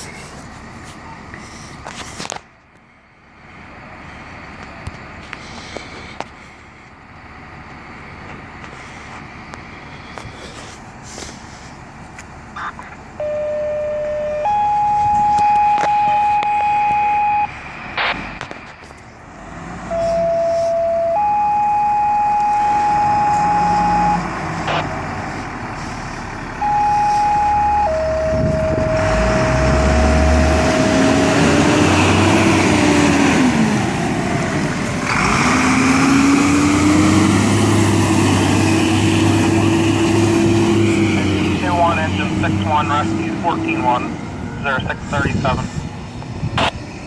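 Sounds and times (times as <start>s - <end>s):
truck engine rumble: 0.0s - 47.0s
radio dispatch tone beeps: 12.5s - 18.2s, 19.9s - 25.0s, 26.6s - 31.2s
fire engine siren winding: 13.2s - 17.5s, 19.9s - 24.9s, 26.6s - 32.6s.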